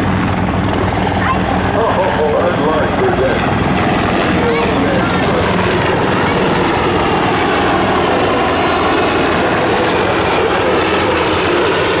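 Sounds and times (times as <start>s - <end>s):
aircraft engine: 0.0s - 12.0s.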